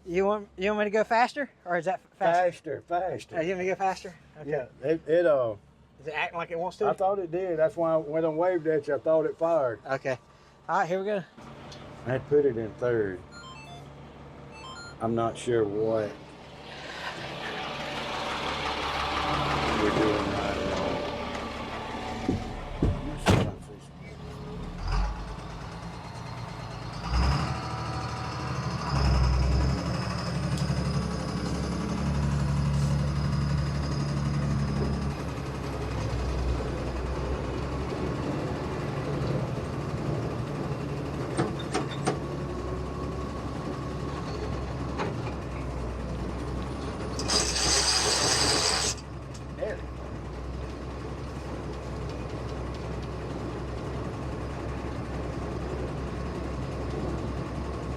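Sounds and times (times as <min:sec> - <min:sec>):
truck engine low drone: 0:06.6 - 0:57.9
loud hiss of air: 0:47.2 - 0:49.0.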